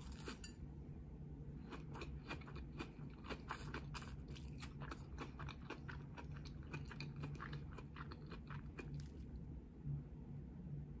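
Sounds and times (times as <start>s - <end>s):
soft wet chewing: 1.6s - 9.5s.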